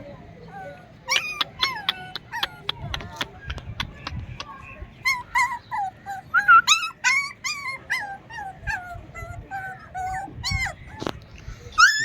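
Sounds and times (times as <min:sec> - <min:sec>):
puppies whining and yelping: 0:00.5 - 0:02.8, 0:05.0 - 0:12.0.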